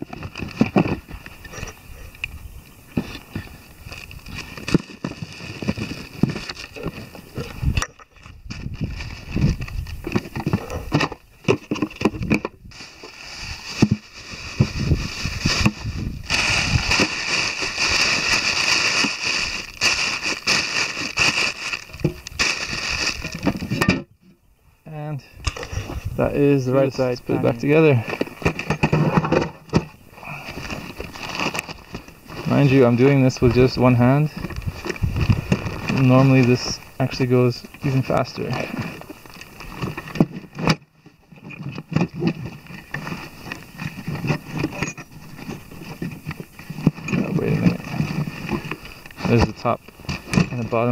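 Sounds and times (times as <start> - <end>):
tools being packed into luggage: 0.0 - 1.8, 2.9 - 24.1, 37.3 - 50.9
bags rustling and crackling: 2.8 - 23.8, 29.8 - 40.6, 41.2 - 50.9
small knocks and thumps: 9.5 - 12.6.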